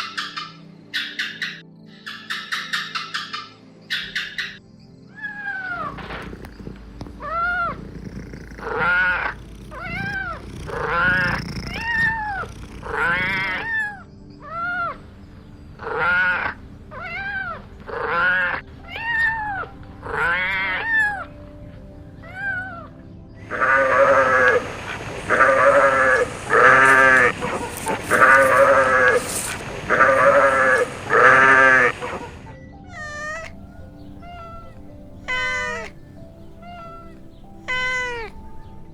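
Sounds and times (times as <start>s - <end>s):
harsh kitten cries: 7.2s - 14.9s, 32.9s - 38.6s
kitten meowing: 8.4s - 14.0s, 32.9s - 38.6s.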